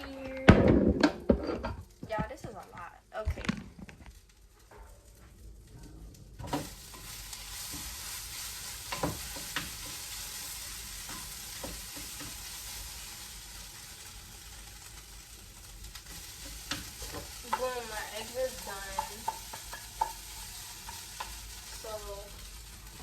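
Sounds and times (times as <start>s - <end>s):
eggs sizzling in a pan: 0.0s - 23.0s.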